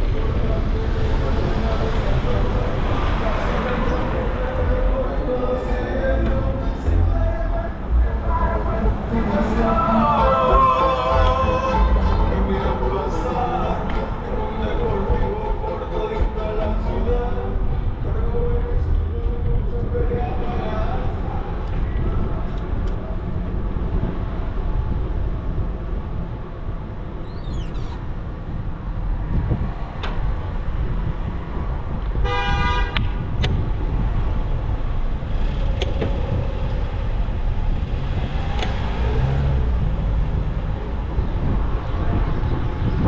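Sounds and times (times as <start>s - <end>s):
street traffic: 0.0s - 43.0s
wind rumbling on microphone: 0.0s - 43.0s
vehicle horn toot: 32.2s - 33.2s.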